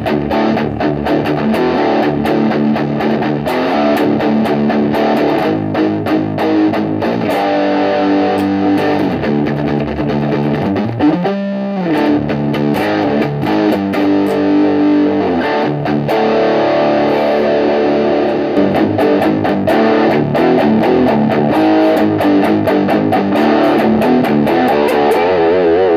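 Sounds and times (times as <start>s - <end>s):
distorted electric guitar: 0.0s - 25.9s.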